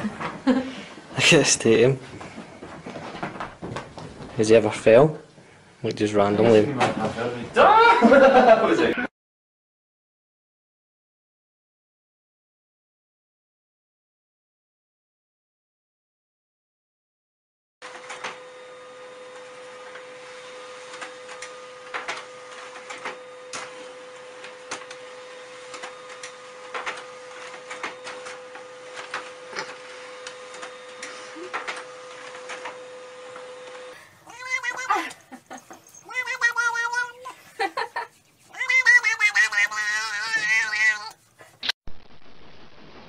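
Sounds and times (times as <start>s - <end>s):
cat yowling: 34.2s - 37.4s, 38.4s - 41.3s.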